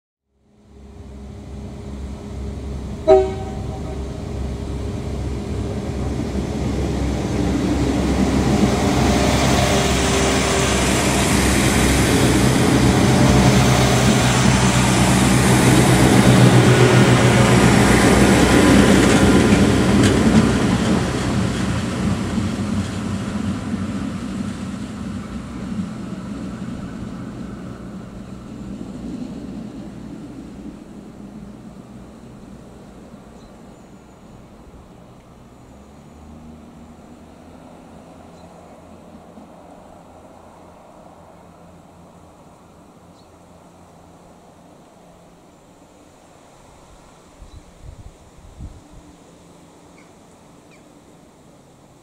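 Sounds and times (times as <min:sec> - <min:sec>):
train diesel engines: 0:00.4 - 0:52.0
train wheels on rails: 0:00.9 - 0:36.1.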